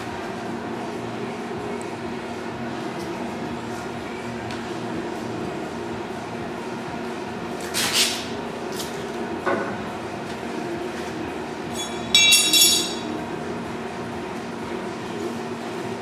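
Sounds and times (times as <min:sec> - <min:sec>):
steady background hum: 0:00.0 - 0:16.0
metal clanking: 0:11.7 - 0:13.2
ringing metallic clatter: 0:11.7 - 0:13.2.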